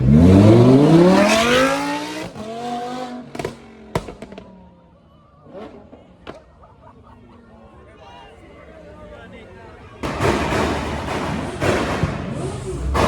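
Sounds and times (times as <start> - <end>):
car engine revving: 0.0 - 4.5.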